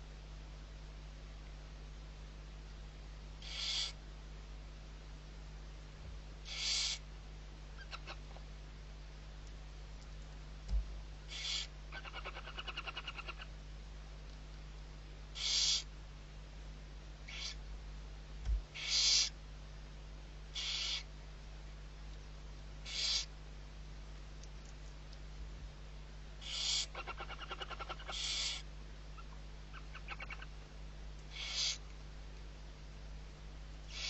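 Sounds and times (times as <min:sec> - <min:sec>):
owl chick hissing: 0:03.4 - 0:04.0, 0:06.4 - 0:07.1, 0:11.3 - 0:13.5, 0:15.3 - 0:15.9, 0:17.3 - 0:17.6, 0:18.7 - 0:19.4, 0:20.5 - 0:21.1, 0:22.8 - 0:23.3, 0:26.4 - 0:28.7, 0:31.3 - 0:31.9.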